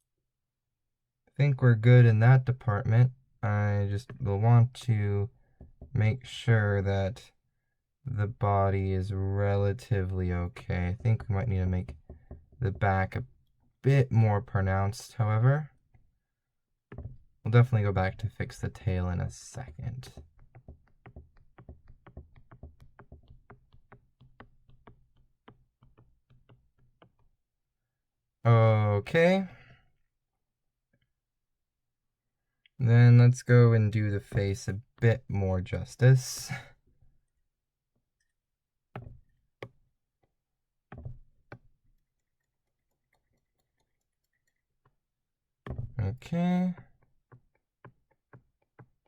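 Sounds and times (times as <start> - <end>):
stylus tapping on drawing tablet: 5.5 - 6.0, 10.6 - 13.3, 16.9 - 17.3, 18.1 - 27.4, 38.9 - 46.0, 46.7 - 49.0.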